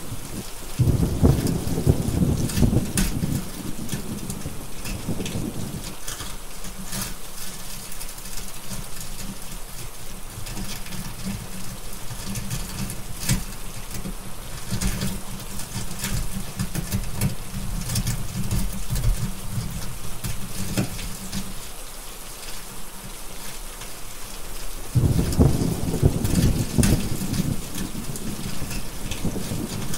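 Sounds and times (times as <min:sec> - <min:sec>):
heavy rain hissing: 0:00.0 - 0:29.9
thunder rolling: 0:00.3 - 0:05.9, 0:24.9 - 0:29.9.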